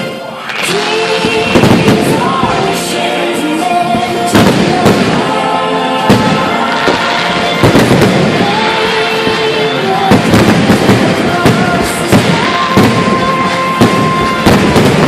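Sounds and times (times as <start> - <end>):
fireworks bursting: 0.0 - 15.0
show music soundtrack: 0.0 - 15.0.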